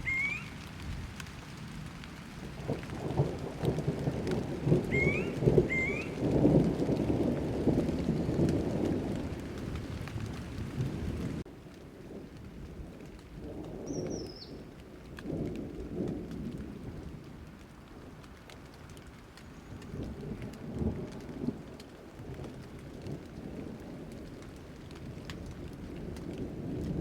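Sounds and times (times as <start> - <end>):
high falling chirp: 0.0 - 0.5, 5.0 - 6.2
low rolls of thunder: 0.0 - 27.0
steady rain: 0.0 - 27.0.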